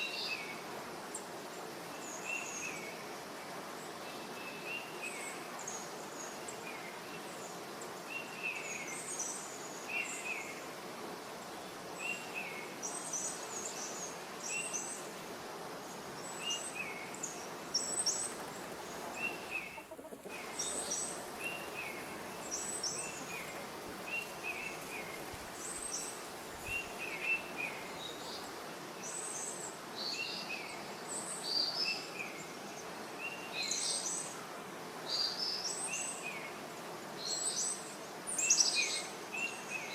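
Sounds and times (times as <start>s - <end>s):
steady outdoor hiss: 0.0s - 39.9s
birds chirping: 17.7s - 28.4s.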